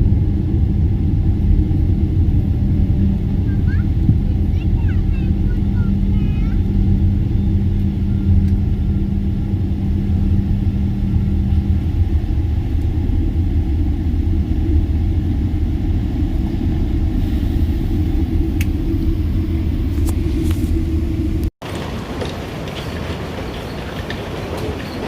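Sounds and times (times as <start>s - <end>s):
low hum: 0.0s - 23.5s
vehicle rumble from inside: 0.0s - 25.0s.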